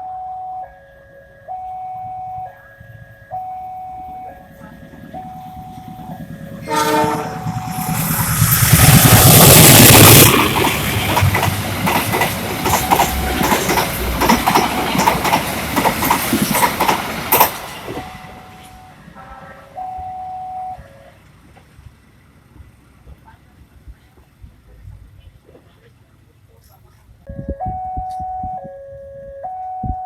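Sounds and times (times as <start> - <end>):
train passing at speed: 2.4 - 25.2
wheels clattering over rail joints: 4.4 - 18.3.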